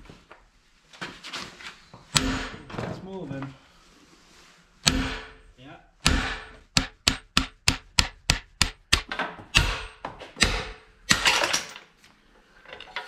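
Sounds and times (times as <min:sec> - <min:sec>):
hammer striking metal: 0:02.2 - 0:02.7, 0:04.8 - 0:11.6.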